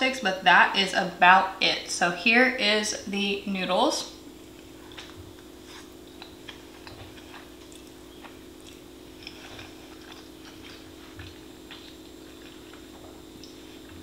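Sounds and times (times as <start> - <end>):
steady low hum: 0.0 - 14.0
person chewing noodles: 4.5 - 14.0.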